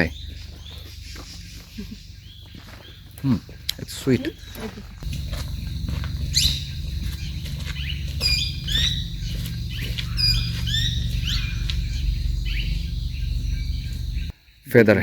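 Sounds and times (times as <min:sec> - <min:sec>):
birds chirping: 0:00.0 - 0:15.0
faint insect whine: 0:00.0 - 0:15.0
low microphone rumble: 0:04.4 - 0:14.3.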